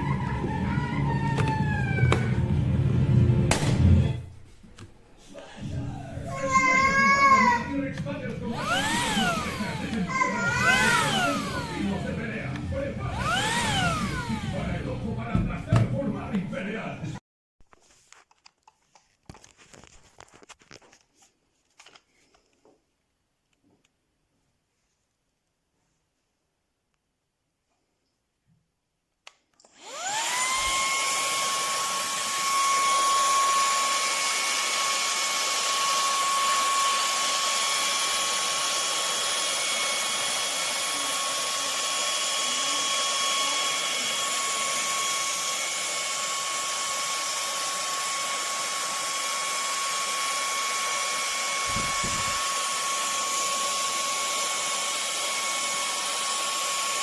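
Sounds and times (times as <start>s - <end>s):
vacuum motor whine: 0.0s - 4.2s, 6.4s - 16.0s, 29.7s - 57.0s.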